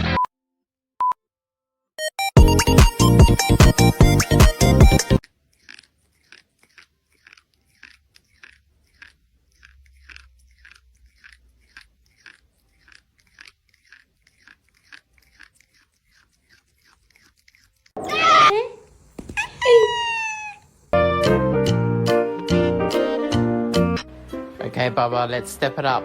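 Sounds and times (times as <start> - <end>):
crisp chewing crunches: 5.1 - 20.8.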